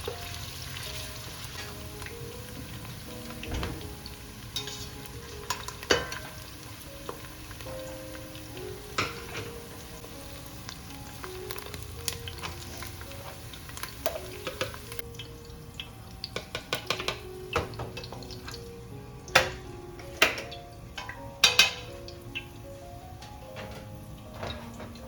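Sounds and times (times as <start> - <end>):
food sizzling in a pan: 0.0 - 25.0
soft background music: 0.0 - 25.0
utensil knocking against pan: 16.3 - 18.3, 19.4 - 21.9.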